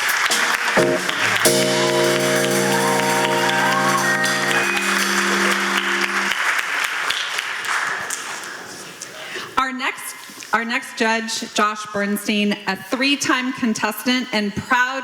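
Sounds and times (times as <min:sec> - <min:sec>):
audience applauding: 0:00.0 - 0:08.8
music with long held chords: 0:00.8 - 0:06.5.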